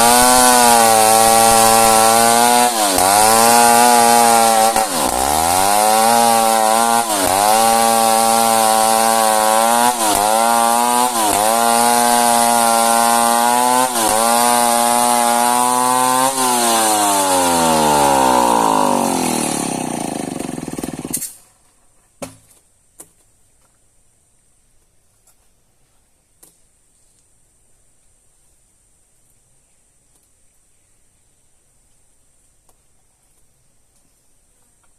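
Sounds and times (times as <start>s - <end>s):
chainsaw cutting through log: 0.0s - 21.4s.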